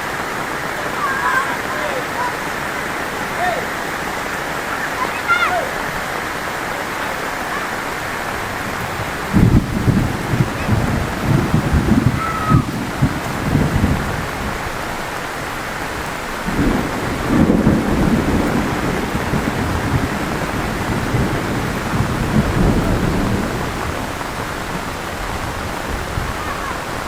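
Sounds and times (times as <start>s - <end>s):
heavy rain pouring: 0.0s - 27.0s
low rumbles of thunder: 8.3s - 27.0s.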